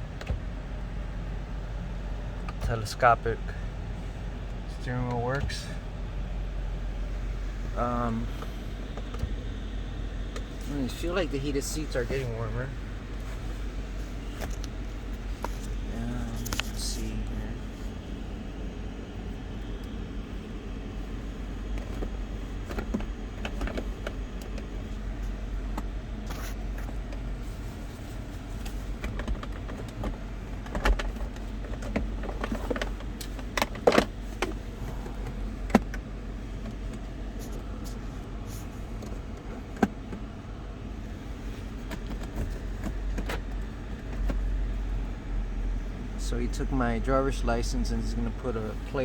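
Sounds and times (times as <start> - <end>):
clicks of interior controls: 0.0 - 0.6, 2.3 - 3.0, 4.5 - 5.6, 8.1 - 12.3, 14.3 - 17.4, 21.7 - 27.3, 28.5 - 38.0, 38.6 - 40.3, 41.7 - 45.0
car engine idling: 0.0 - 49.0.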